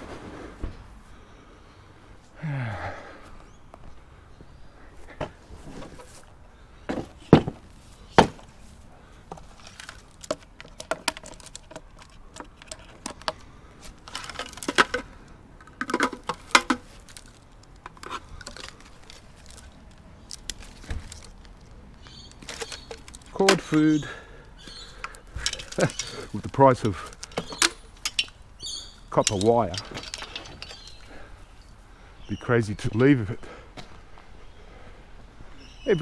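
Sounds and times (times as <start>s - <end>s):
junk being rummaged through: 5.0s - 31.9s.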